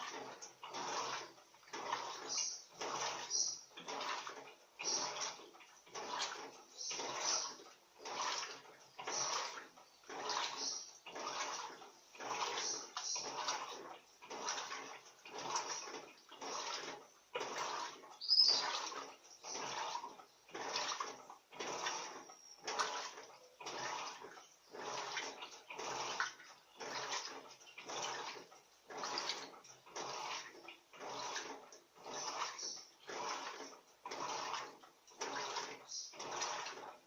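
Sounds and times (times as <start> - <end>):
washing machine water sloshing: 0.0 - 37.0.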